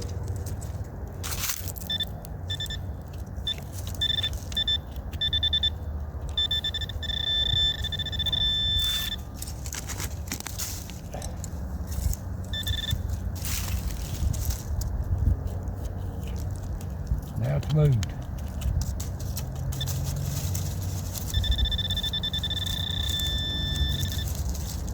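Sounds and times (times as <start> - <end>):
metal detector beeps: 1.8 - 9.6, 12.4 - 13.8, 19.7 - 24.9
metal detector held tone: 1.8 - 9.7, 12.4 - 13.8, 19.7 - 24.9.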